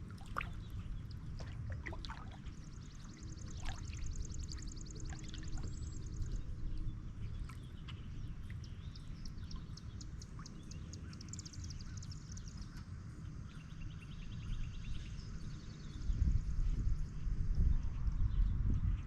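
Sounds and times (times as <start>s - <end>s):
songbirds singing: 0.0s - 19.0s
low rumble: 14.3s - 19.0s.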